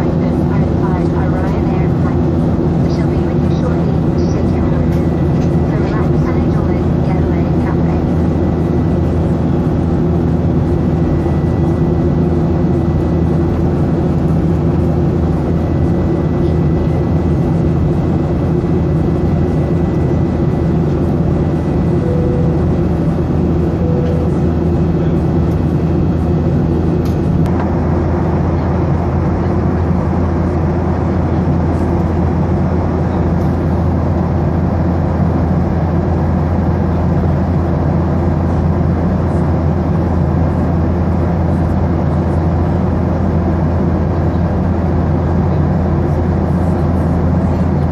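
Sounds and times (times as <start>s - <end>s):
jet engine drone: 0.0s - 47.9s.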